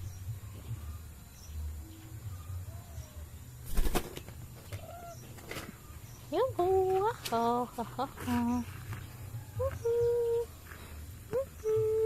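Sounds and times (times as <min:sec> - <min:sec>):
parrot flapping wings: 0:03.7 - 0:04.3.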